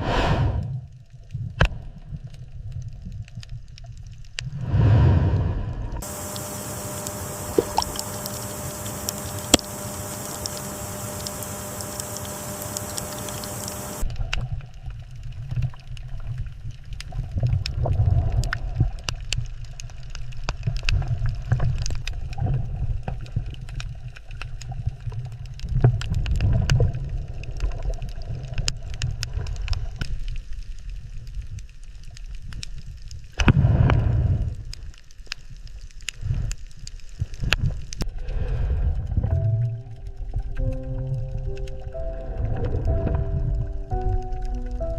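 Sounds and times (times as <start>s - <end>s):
water rumbling and gurgling: 0.0s - 44.9s
steady hiss: 4.5s - 14.0s
faint hum: 4.5s - 14.2s, 38.0s - 44.9s
small clicks: 6.0s - 14.5s.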